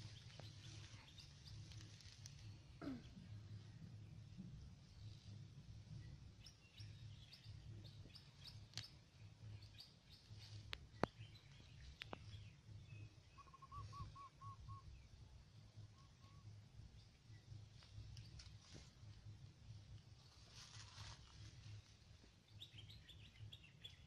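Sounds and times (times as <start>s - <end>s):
bird chirps and calls: 11.0s - 15.0s.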